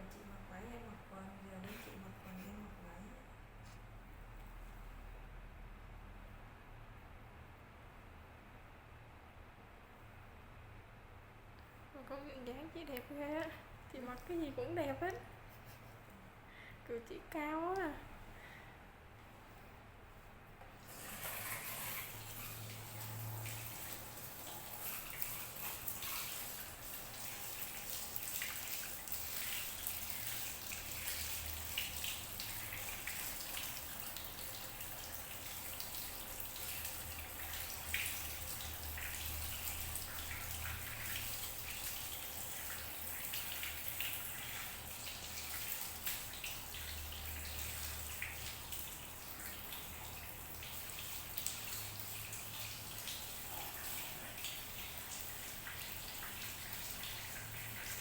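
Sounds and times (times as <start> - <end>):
tap water running and splashing: 20.6 - 58.0.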